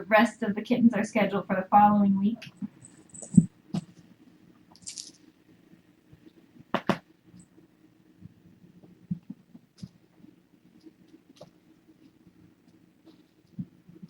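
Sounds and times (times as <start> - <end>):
low steady hum: 0.0 - 14.0
kittens tapping and pattering: 2.4 - 4.0, 8.8 - 14.0.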